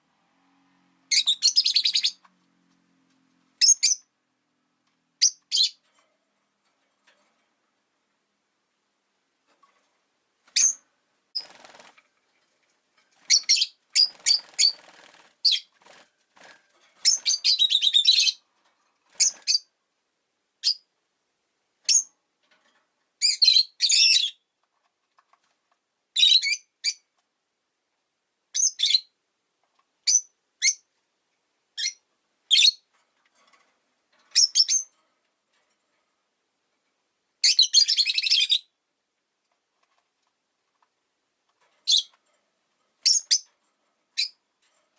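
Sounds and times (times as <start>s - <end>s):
lovebirds high-pitched chirps: 1.1s - 2.3s, 3.6s - 4.1s, 5.2s - 5.8s, 10.5s - 10.8s, 13.2s - 15.7s, 17.0s - 18.4s, 19.1s - 19.7s, 20.6s - 20.9s, 21.9s - 22.1s, 23.2s - 24.5s, 26.2s - 27.1s, 28.5s - 29.2s, 30.0s - 30.9s, 31.8s - 32.9s, 34.3s - 34.9s, 37.4s - 38.8s, 41.8s - 42.2s, 43.0s - 43.5s, 44.2s - 44.4s.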